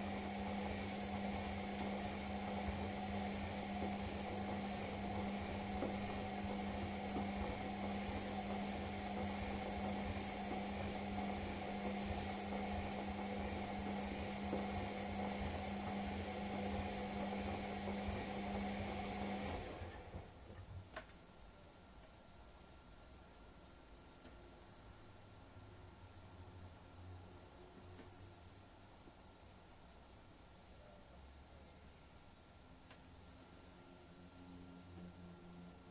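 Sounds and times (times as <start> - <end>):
washing machine humming: 0.0 - 21.0.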